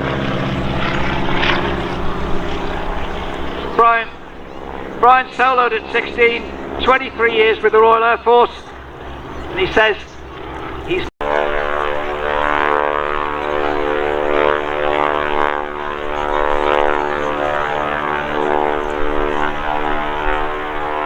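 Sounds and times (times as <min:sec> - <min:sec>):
biplane engine droning: 0:00.0 - 0:21.0.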